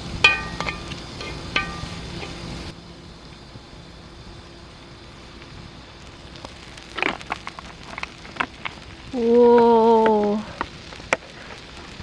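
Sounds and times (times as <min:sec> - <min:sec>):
food sizzling in a pan: 0:00.0 - 0:12.0
metal utensil clinking on pan: 0:00.2 - 0:01.9.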